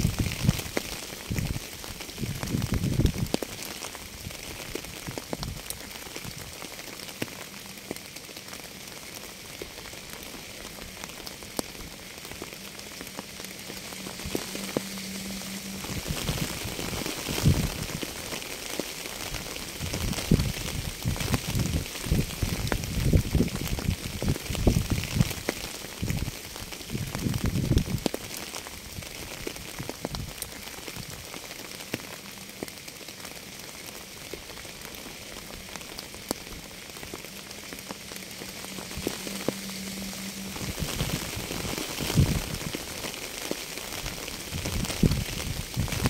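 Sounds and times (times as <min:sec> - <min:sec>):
rain hissing: 0:00.0 - 0:46.0
raindrops ticking: 0:00.0 - 0:46.0
low rumbling: 0:10.5 - 0:18.4, 0:34.9 - 0:43.0.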